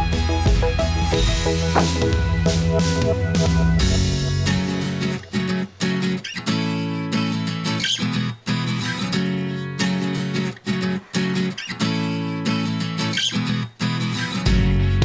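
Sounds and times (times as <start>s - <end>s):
strummed guitar chords: 0.0s - 7.2s.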